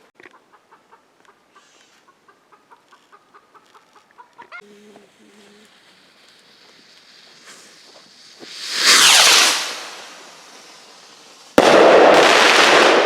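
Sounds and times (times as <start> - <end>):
firework whooshing burst: 5.1 - 13.0
firework bang: 7.3 - 13.0.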